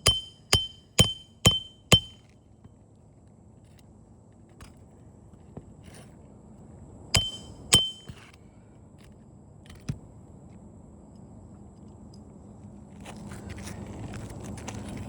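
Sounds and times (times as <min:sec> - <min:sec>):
hammer blows on metal: 0:00.0 - 0:02.2, 0:07.2 - 0:08.2.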